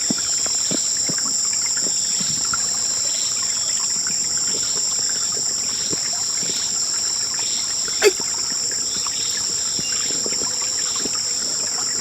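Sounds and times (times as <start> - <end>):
small ticks and crackles: 0.0 - 7.7.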